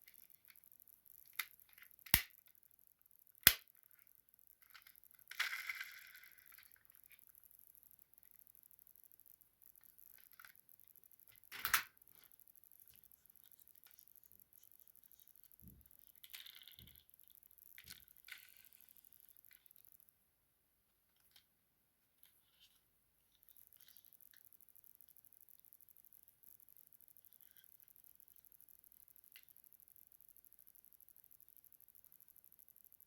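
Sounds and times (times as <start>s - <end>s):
handling small objects: 3.4s - 20.0s.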